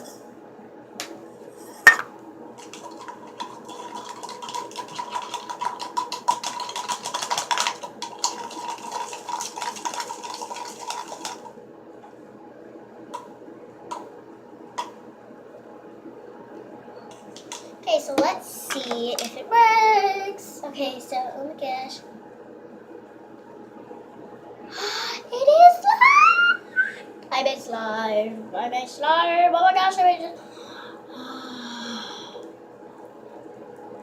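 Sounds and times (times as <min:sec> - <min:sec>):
faint ringing tone from container: 0:01.9 - 0:02.1
sharp clink: 0:01.9 - 0:02.1
utensil stirring and scraping container: 0:02.8 - 0:11.4.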